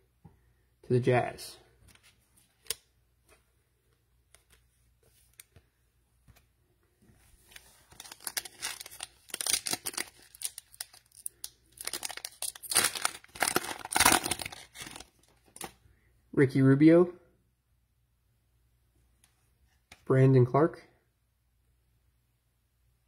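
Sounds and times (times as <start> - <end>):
wrapper tearing and crinkling: 7.5 - 15.7.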